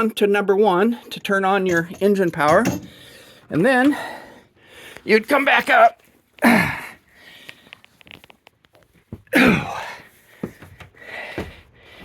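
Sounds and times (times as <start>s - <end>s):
man breathing hard: 2.8s - 5.1s, 6.4s - 7.8s, 9.4s - 12.0s
man grunting with effort: 6.4s - 7.0s, 9.3s - 10.0s
knocks and scuffs of feet and hands: 10.2s - 12.0s.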